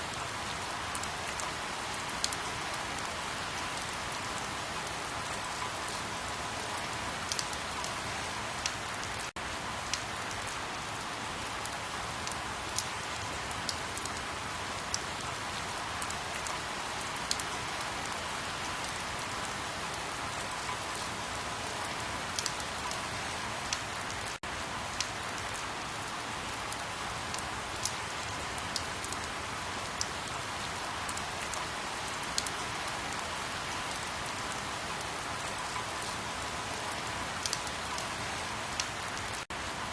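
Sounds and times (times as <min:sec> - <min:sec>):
steady rain hiss: 0:00.0 - 0:39.9
sharp raindrop clicks: 0:07.3 - 0:07.9, 0:22.4 - 0:23.0, 0:37.4 - 0:38.1.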